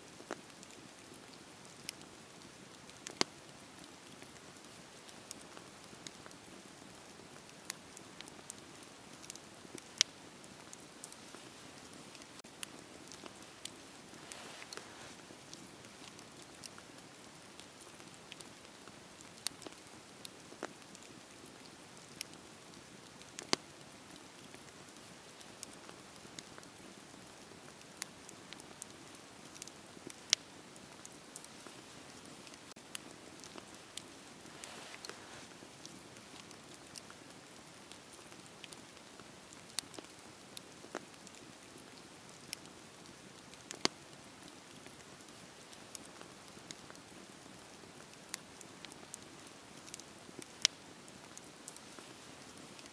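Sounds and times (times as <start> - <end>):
wood fire crackling and popping: 0.1 - 52.9.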